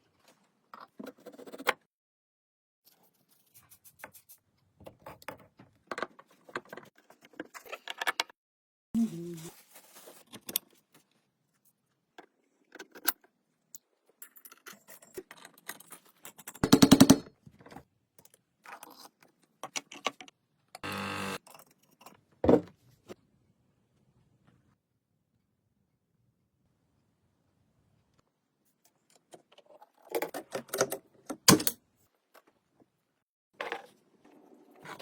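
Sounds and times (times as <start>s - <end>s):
short steady buzz: 20.8s - 21.4s.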